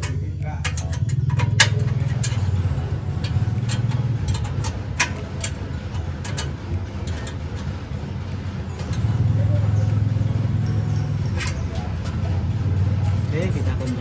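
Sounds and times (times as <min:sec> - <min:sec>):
metallic clicks and taps: 0:00.0 - 0:07.7
diesel engine idling: 0:00.0 - 0:14.0.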